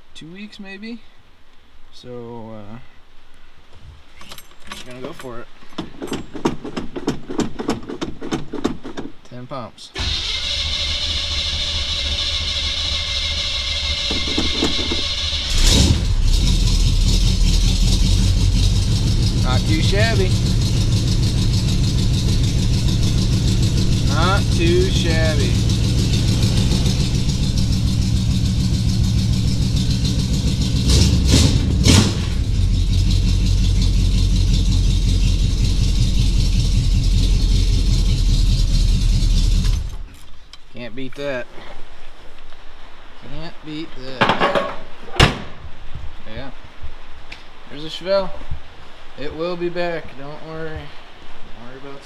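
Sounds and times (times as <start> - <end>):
car engine cranking and starting: 10.0 - 40.3.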